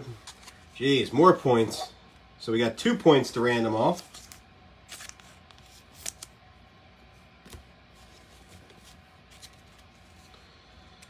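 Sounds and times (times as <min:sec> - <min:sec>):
cards rustling and clicking: 0:00.1 - 0:00.7, 0:03.8 - 0:06.3, 0:07.5 - 0:10.3.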